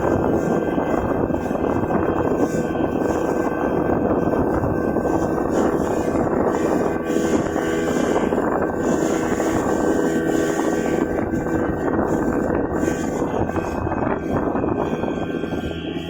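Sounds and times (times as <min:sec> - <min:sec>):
speedboat engine running: 0:00.0 - 0:16.0.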